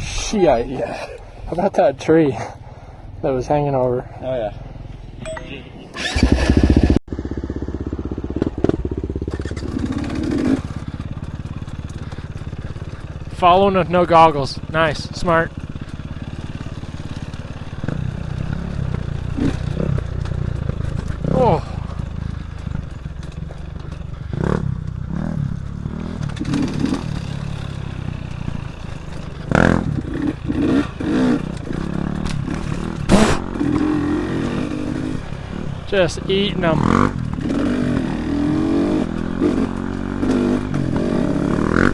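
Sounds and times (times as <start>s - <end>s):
dirt bike engine running: 6.0s - 41.9s
sharp knocks and clatter: 26.0s - 27.6s.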